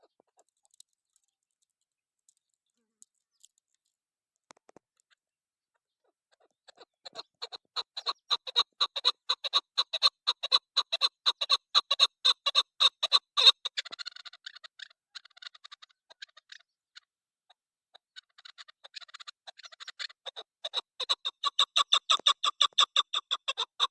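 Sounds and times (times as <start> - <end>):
partridge sharp clucking calls: 5.7 - 23.9.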